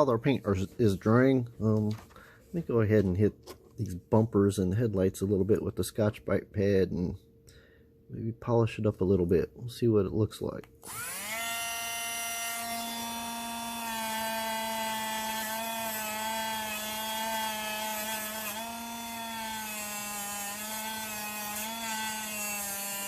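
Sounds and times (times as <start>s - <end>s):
rotary tool whining: 10.8s - 23.0s.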